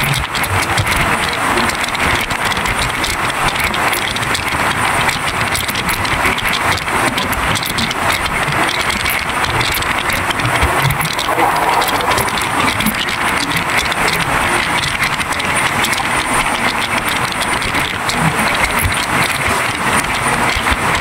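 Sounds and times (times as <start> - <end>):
small clicks: 0.0 - 21.0
train wheels on rails: 0.0 - 21.0
wind rushing: 10.4 - 13.4.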